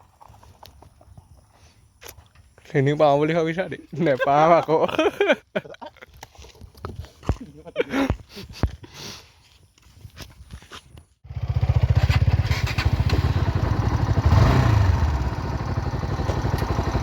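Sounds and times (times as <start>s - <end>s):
motorcycle engine running: 11.2s - 17.0s.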